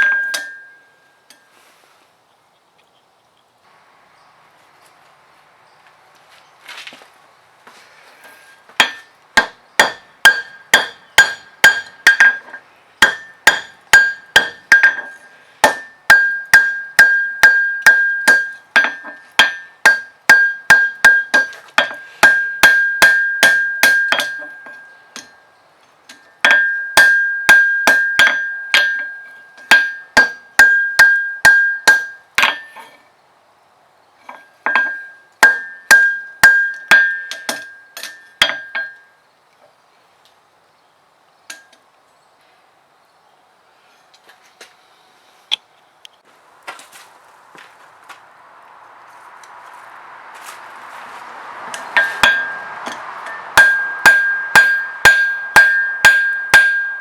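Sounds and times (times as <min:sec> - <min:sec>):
hammer striking steel on anvil: 0:00.0 - 0:01.5, 0:08.8 - 0:25.4, 0:26.1 - 0:33.0, 0:34.3 - 0:39.1, 0:51.7 - 0:57.0.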